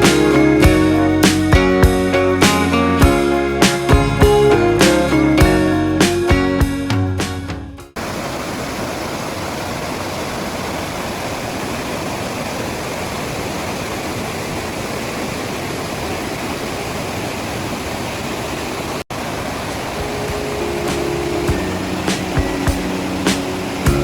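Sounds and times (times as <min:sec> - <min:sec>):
waterfall rushing: 0:07.9 - 0:24.0.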